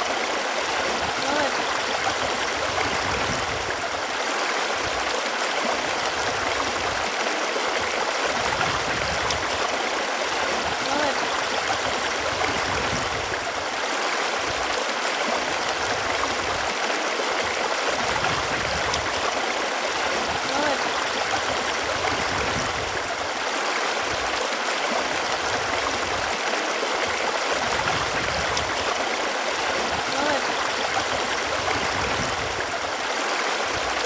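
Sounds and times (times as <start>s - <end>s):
running water rushing: 0.0s - 34.0s.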